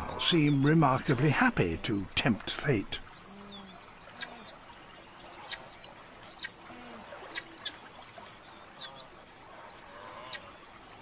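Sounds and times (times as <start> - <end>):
faint low coos: 3.2 - 4.6, 6.6 - 7.6.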